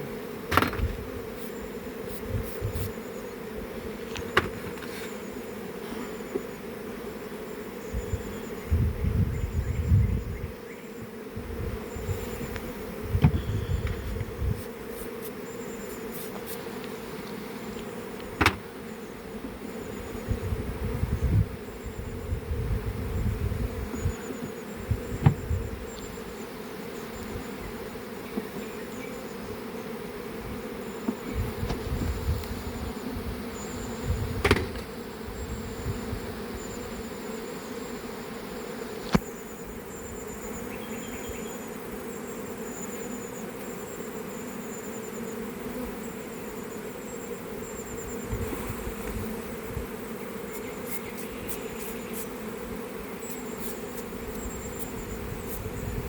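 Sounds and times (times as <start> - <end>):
honeybees buzzing: 0.0 - 56.0
sharp knocks: 0.5 - 1.0, 4.3 - 4.8, 13.2 - 14.0, 18.4 - 18.7, 25.2 - 25.5, 34.4 - 34.9.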